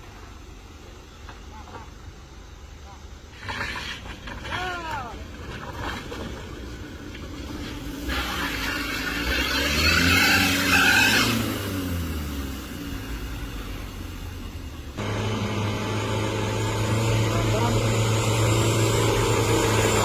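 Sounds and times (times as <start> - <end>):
vehicle passing by: 7.4 - 20.0
low engine hum: 11.2 - 20.0.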